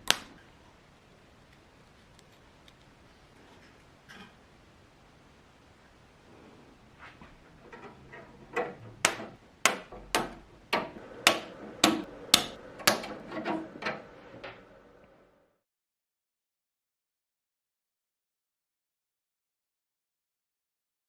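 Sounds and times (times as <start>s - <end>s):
hammer striking metal: 7.8s - 14.8s.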